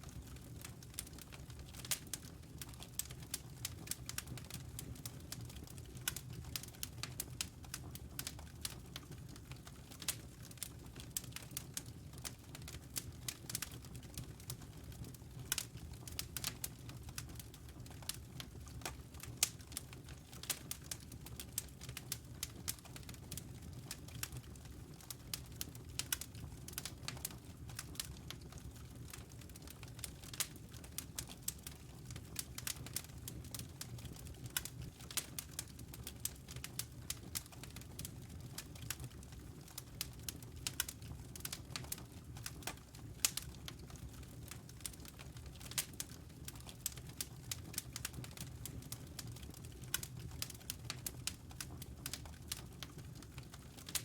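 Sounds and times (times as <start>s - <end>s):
wood fire crackling: 0.0s - 54.0s
burning logs popping: 15.4s - 54.0s.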